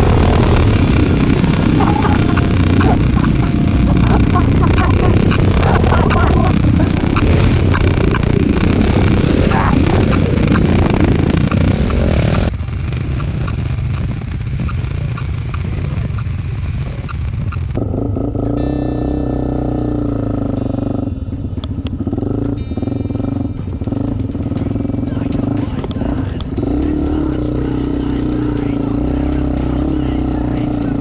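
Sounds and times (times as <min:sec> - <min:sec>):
wind noise: 0:00.0 - 0:18.3
motorcycle engines running: 0:00.0 - 0:31.0.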